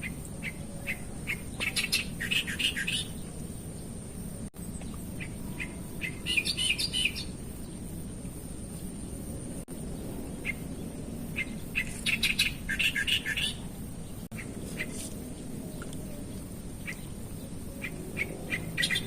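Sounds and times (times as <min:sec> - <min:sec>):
outdoor background hiss: 0:00.0 - 0:19.0
wild birds chirping: 0:00.0 - 0:19.0.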